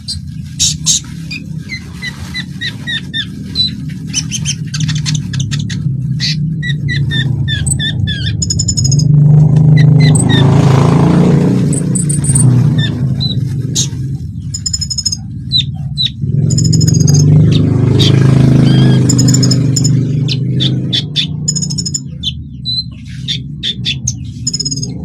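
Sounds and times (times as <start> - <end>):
songbird chirps and whistles: 1.3 - 10.6, 14.5 - 25.0.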